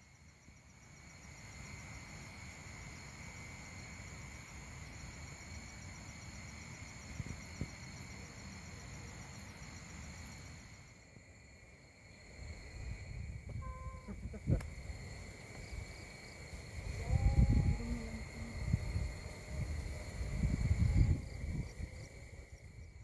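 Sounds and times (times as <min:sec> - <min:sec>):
insects chirring: 0:00.0 - 0:23.0
low rumbling background noise: 0:12.2 - 0:23.0.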